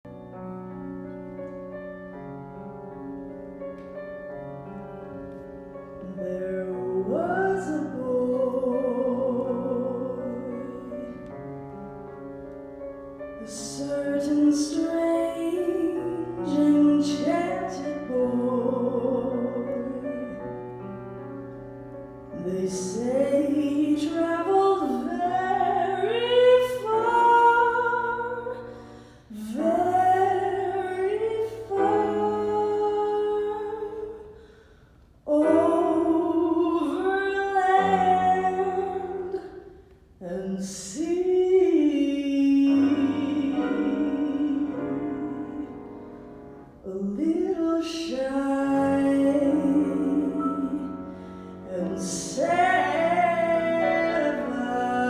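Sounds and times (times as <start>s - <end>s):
woman singing: 5.9s - 11.5s, 13.4s - 20.6s, 22.3s - 34.4s, 35.2s - 46.1s, 46.8s - 55.0s.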